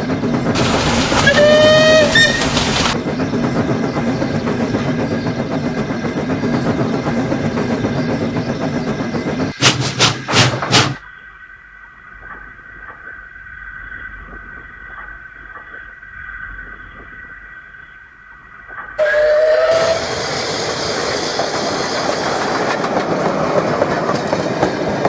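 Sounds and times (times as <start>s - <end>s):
train running: 0.0s - 11.1s, 12.0s - 25.0s
steam locomotive whistle: 0.6s - 3.0s, 19.0s - 22.3s.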